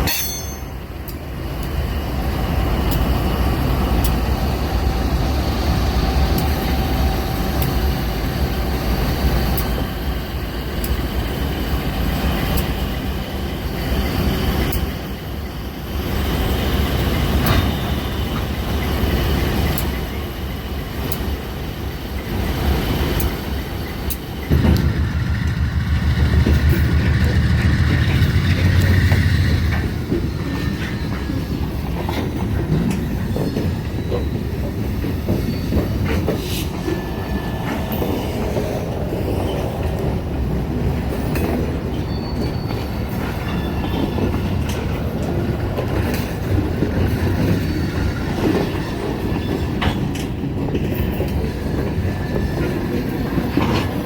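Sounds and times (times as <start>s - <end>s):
freight train rumbling: 0.0s - 54.0s
wheel squeal: 41.9s - 44.2s.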